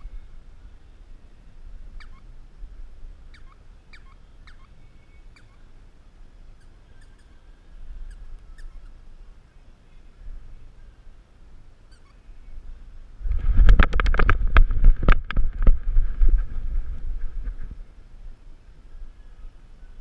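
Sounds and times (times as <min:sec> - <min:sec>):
low wind rumble: 0:00.0 - 0:20.0
bird chirping: 0:01.9 - 0:02.3, 0:03.2 - 0:05.8, 0:06.6 - 0:09.1, 0:11.9 - 0:12.7
microphone handling noise: 0:13.2 - 0:17.9.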